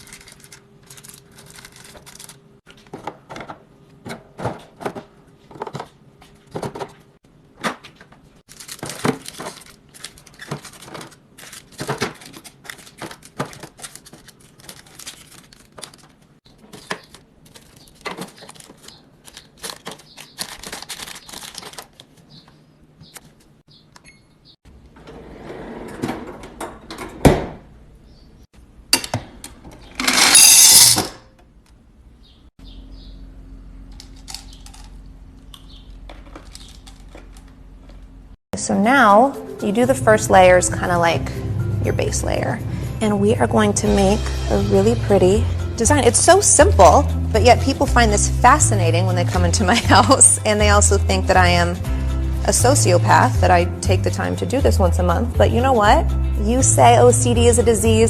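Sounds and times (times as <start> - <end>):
packaging rustling: 0.0 - 2.5, 8.5 - 22.3.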